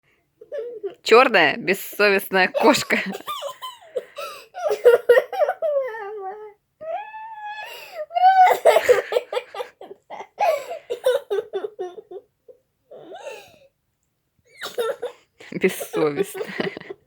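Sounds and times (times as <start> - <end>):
child whiny squeals: 5.6 - 8.6
young child laughing: 8.3 - 10.4.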